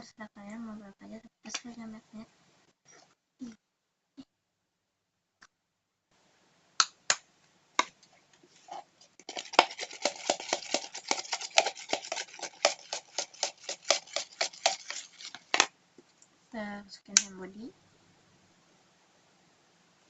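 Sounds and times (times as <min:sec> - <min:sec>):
spoon stirring in plastic container: 0:08.5 - 0:15.7.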